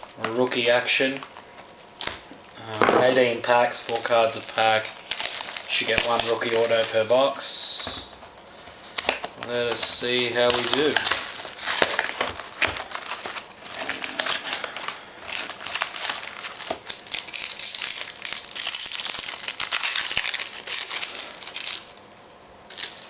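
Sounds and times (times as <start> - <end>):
plastic wrapping crinkling and tearing: 0.0 - 23.0.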